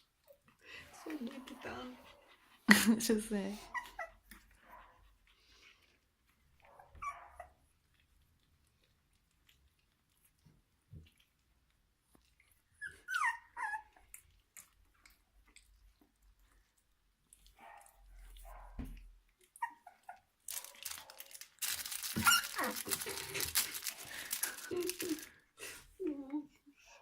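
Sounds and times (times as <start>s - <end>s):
puppies whimpering and squeaking: 1.0s - 2.7s, 3.5s - 5.9s, 6.8s - 7.8s, 12.4s - 14.3s, 19.4s - 25.3s
puppy squeals: 3.6s - 4.3s, 6.9s - 7.6s, 12.8s - 14.1s, 19.5s - 20.7s, 21.9s - 23.2s.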